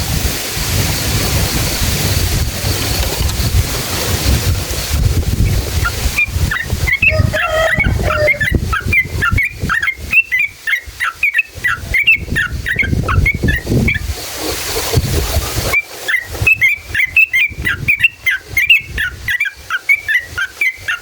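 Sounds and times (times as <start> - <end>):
bird singing rapid chirps: 5.4 - 14.0.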